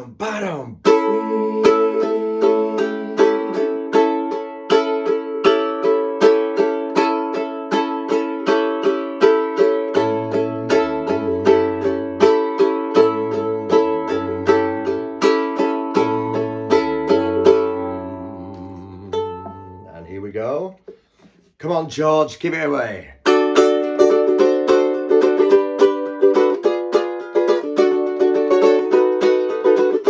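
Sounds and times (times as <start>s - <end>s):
ukulele strumming chords: 0.8s - 19.9s, 23.2s - 30.0s
low bass line: 9.8s - 20.2s.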